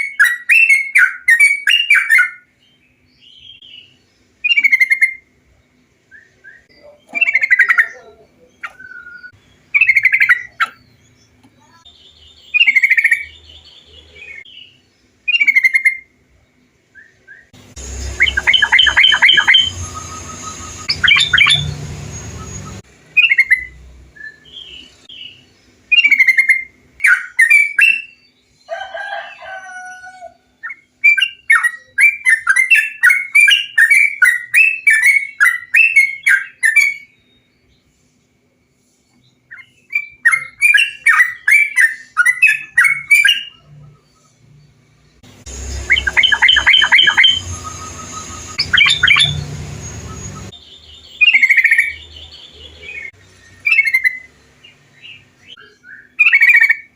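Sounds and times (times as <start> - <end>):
bulbuls singing: 0.0 - 37.1, 39.3 - 56.9
rapid bird chattering: 4.5 - 5.2, 6.8 - 11.1, 11.8 - 13.4, 15.3 - 16.1, 17.8 - 23.8, 45.5 - 54.3.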